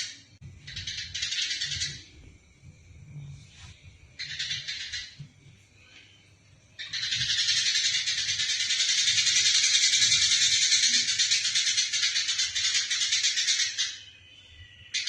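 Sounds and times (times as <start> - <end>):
sparrows chattering: 0.0 - 2.2, 4.1 - 5.2, 6.7 - 15.0.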